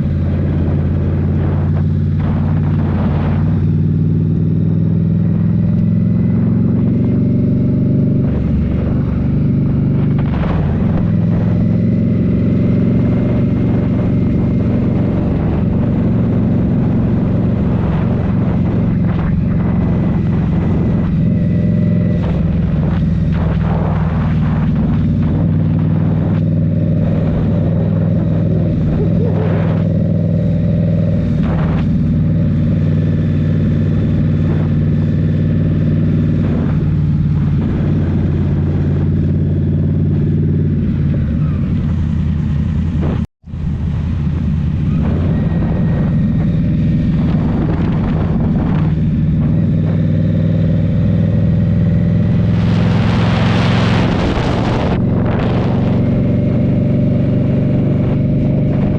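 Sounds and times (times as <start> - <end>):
motorcycle engine running: 0.0 - 58.9
loud rushing noise: 8.1 - 12.0, 17.7 - 32.6, 51.3 - 56.8.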